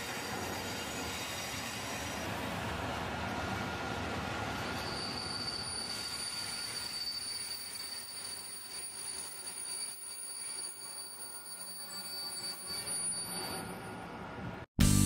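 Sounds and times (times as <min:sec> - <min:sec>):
freight train rumbling past: 0:00.0 - 0:06.1
high-pitched wheel squeal: 0:04.5 - 0:14.1.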